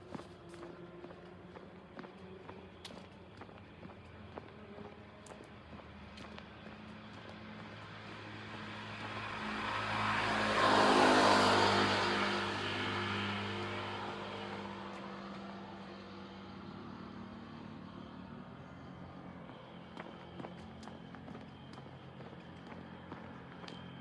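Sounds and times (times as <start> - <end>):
car driving past: 8.1 - 15.0.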